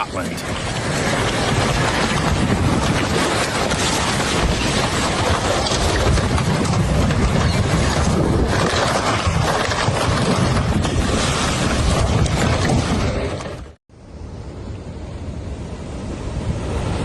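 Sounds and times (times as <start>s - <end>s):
floodwater rushing: 0.0s - 7.0s
wind buffeting microphone: 0.0s - 13.8s.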